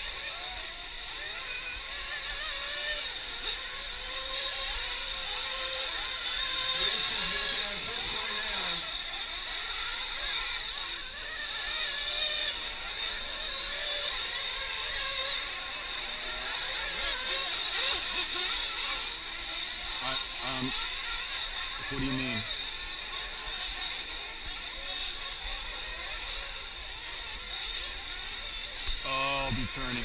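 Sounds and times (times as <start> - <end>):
rc truck engines whining: 0.0 - 30.0
faint voices: 6.6 - 9.1, 21.8 - 22.6, 28.9 - 30.0.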